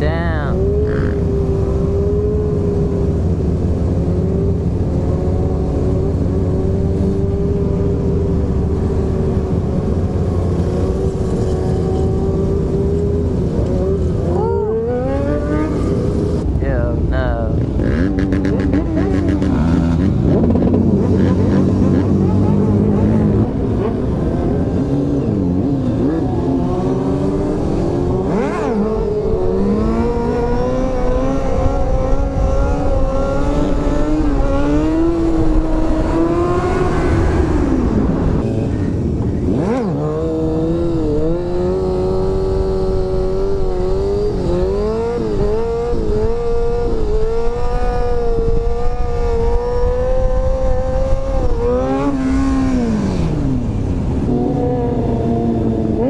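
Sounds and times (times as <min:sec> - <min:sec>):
motorcycle engine running: 0:00.0 - 0:36.6
wind noise: 0:00.0 - 0:56.0.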